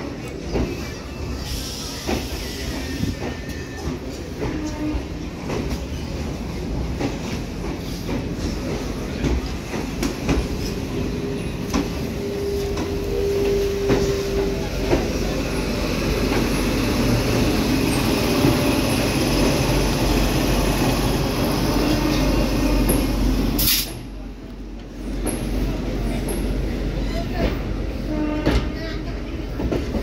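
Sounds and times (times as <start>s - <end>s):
train running noise: 0.0s - 30.0s
train wheel squeal: 0.1s - 6.2s, 10.6s - 19.7s
train wheels clicking over rail joints: 2.0s - 19.8s.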